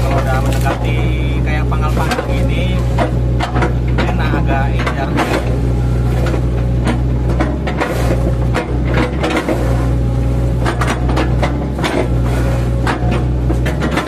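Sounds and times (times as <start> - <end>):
wood cracking and splitting: 0.0 - 2.8
mini excavator engine running: 0.0 - 14.0.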